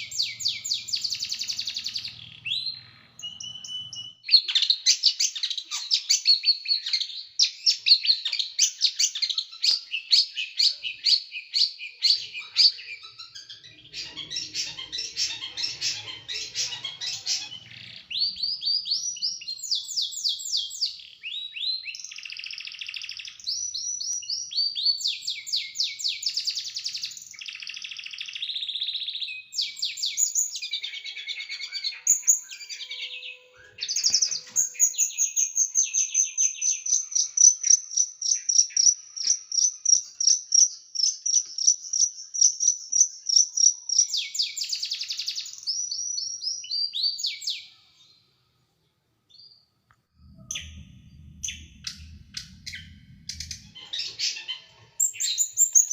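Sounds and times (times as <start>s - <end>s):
songbird singing high trills: 0.0s - 48.1s, 50.2s - 55.9s
faint low rumble: 50.0s - 54.3s.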